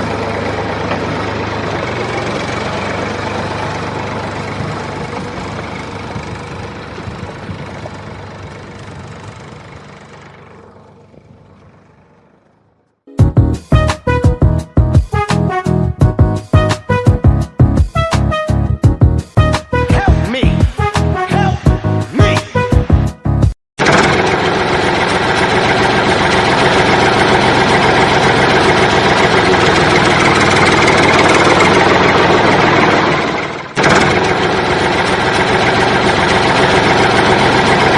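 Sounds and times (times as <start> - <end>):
tractor engine idling: 0.0 - 12.9, 23.8 - 37.9.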